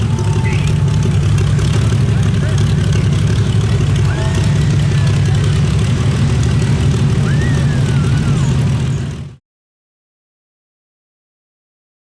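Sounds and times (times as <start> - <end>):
large vehicle engine idling: 0.0 - 9.4.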